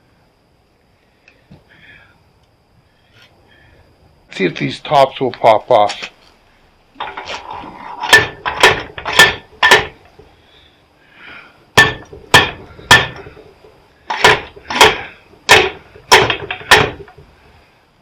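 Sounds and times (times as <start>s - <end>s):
hammer striking metal: 8.1s - 10.0s, 11.8s - 13.4s, 14.1s - 17.2s.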